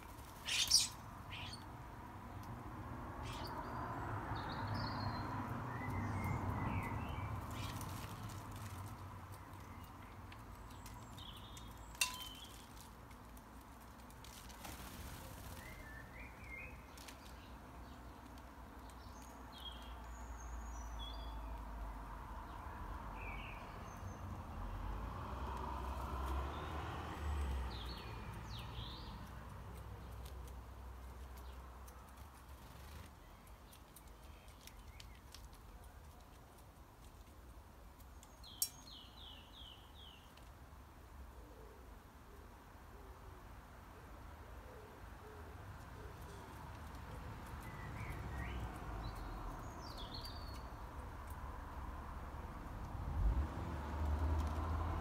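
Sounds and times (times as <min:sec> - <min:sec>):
small birds chirping: 0:00.0 - 0:13.3, 0:14.2 - 0:21.8, 0:26.2 - 0:40.6, 0:44.8 - 0:51.8.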